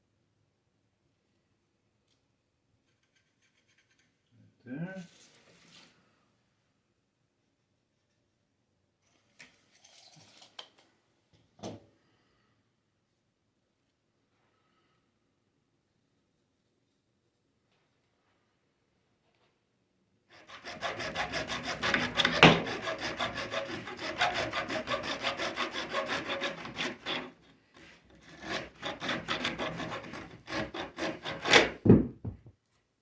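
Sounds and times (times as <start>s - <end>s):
hand saw cutting plastic pipe: 20.3s - 31.9s.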